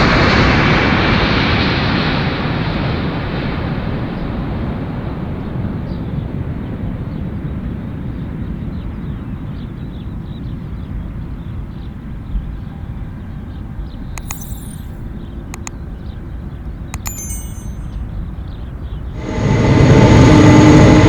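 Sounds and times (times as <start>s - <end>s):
faint chirps: 14.2s - 15.0s, 17.0s - 18.0s
short clicks: 14.2s - 15.0s, 17.0s - 18.0s.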